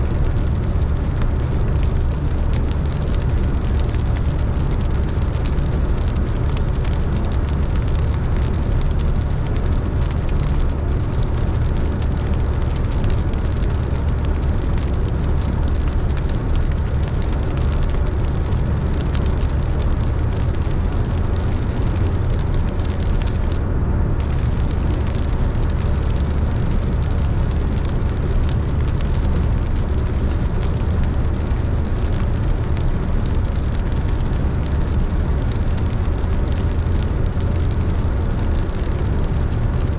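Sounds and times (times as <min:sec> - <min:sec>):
road rumble: 0:00.0 - 0:39.9
tyres hissing on wet road: 0:00.0 - 0:39.9.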